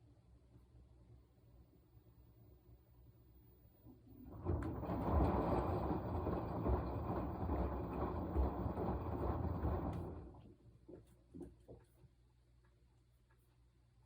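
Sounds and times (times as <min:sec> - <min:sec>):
washing machine drum turning: 0:04.2 - 0:10.4.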